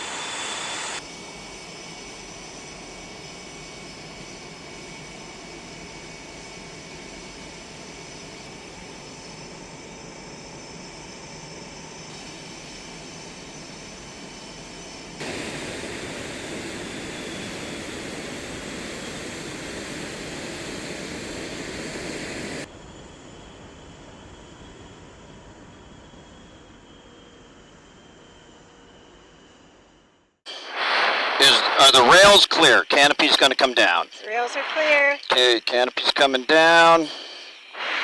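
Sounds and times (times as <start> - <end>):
jet engines whining: 0.0 - 22.7, 30.5 - 38.0.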